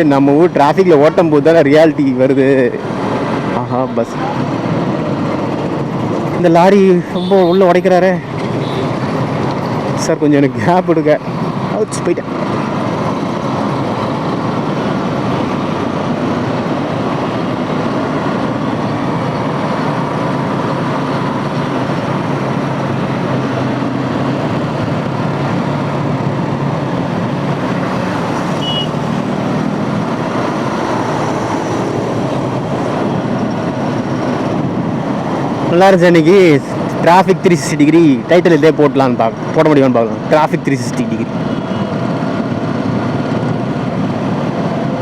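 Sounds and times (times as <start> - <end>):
other vehicles: 0.0 - 45.0
wind and road noise: 0.0 - 45.0
short high beep: 28.6 - 29.0.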